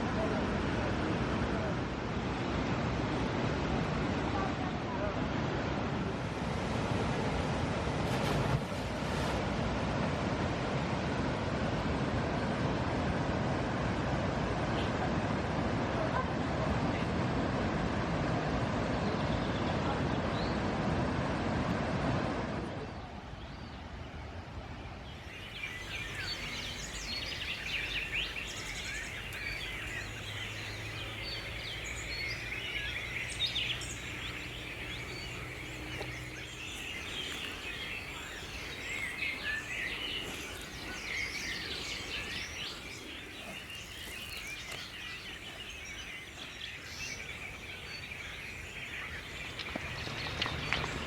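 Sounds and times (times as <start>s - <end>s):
birds chirping: 24.9s - 51.0s
background hiss: 25.2s - 50.9s.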